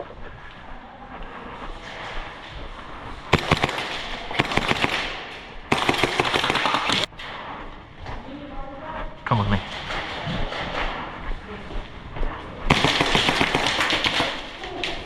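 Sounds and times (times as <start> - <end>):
airsoft guns firing: 3.3 - 7.1, 12.7 - 15.0.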